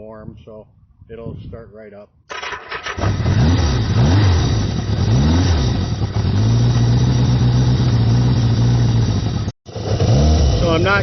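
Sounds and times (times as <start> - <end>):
motorcycle engine revving and idling: 2.3 - 11.0.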